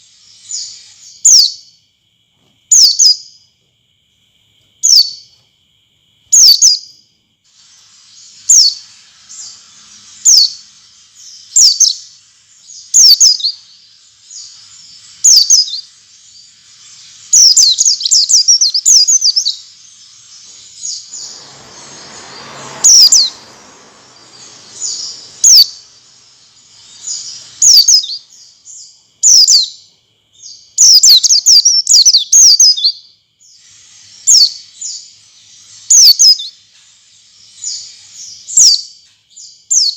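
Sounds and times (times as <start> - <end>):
bird high down-slurred chirps: 7.6 - 29.8, 30.6 - 33.0, 33.6 - 38.9.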